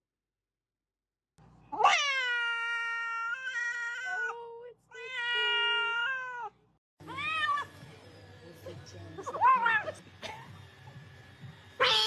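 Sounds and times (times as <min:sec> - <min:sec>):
cat yowling: 0:01.7 - 0:06.5, 0:07.1 - 0:07.7, 0:09.3 - 0:10.0, 0:11.8 - 0:12.0.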